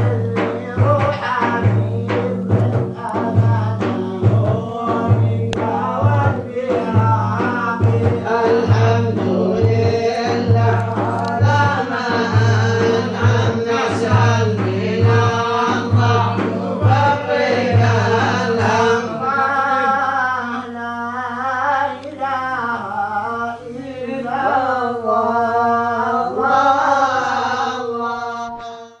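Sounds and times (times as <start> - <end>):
low drumbeat: 0.0 - 19.8
man singing melismatic hymn: 0.0 - 29.0.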